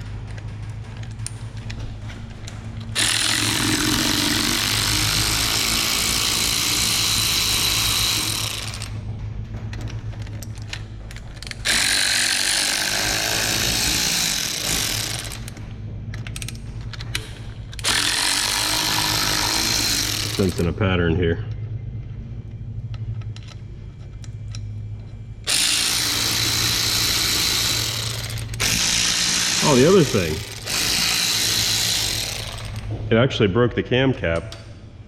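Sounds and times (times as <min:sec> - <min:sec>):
power tool loosening bolts: 0:02.9 - 0:09.0, 0:09.8 - 0:15.6, 0:16.2 - 0:20.7, 0:25.5 - 0:32.9.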